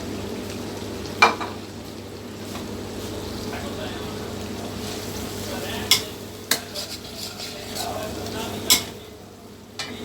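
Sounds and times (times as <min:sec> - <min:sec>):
food sizzling: 0:00.0 - 0:10.0
spoon stirring food: 0:04.5 - 0:09.0.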